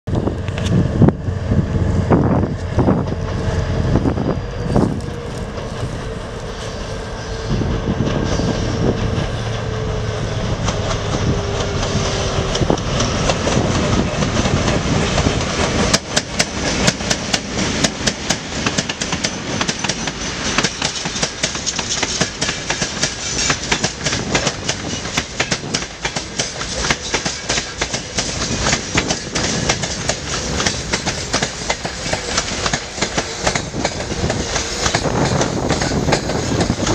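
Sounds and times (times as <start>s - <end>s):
wind buffeting microphone: 0.1s - 27.1s, 27.8s - 36.9s
locomotive engine tone: 0.2s - 16.0s
train wheels clickety-clack: 7.5s - 36.9s.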